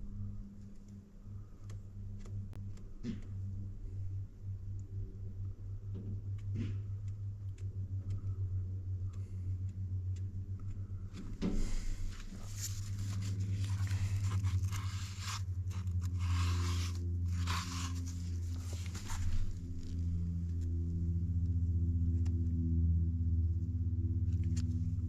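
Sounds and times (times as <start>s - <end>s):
steady low hum: 0.0s - 25.0s
cardboard scraping epoxy: 11.6s - 20.0s.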